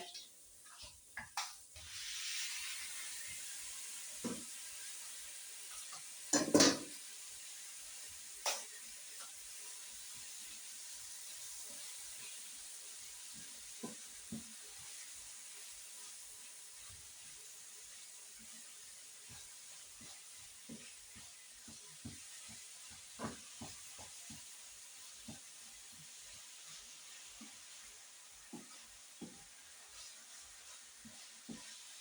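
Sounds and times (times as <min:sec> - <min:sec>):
meat sizzling in frying pan: 0:00.0 - 0:32.0
utensil knocking on pan: 0:06.3 - 0:07.0.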